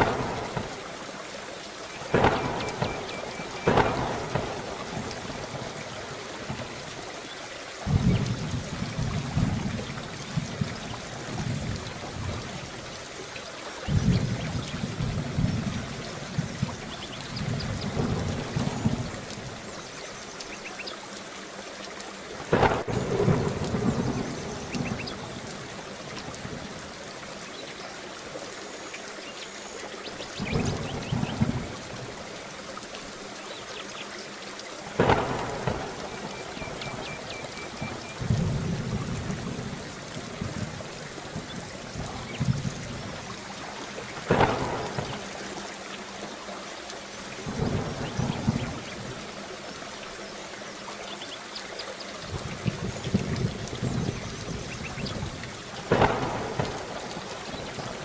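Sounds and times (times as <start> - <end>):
sharp thunderclaps: 0.0 - 0.9, 2.1 - 6.8, 7.8 - 12.6, 13.8 - 19.6, 22.5 - 25.6, 30.4 - 32.1, 35.0 - 43.3, 44.1 - 45.4, 47.5 - 49.1, 52.3 - 58.0
rolling thunder rumbles: 0.0 - 1.0, 2.1 - 6.9, 7.8 - 12.8, 13.8 - 19.7, 22.4 - 26.8, 30.4 - 32.2, 35.0 - 45.4, 47.4 - 49.2, 52.3 - 58.0
steady rain: 0.0 - 58.0.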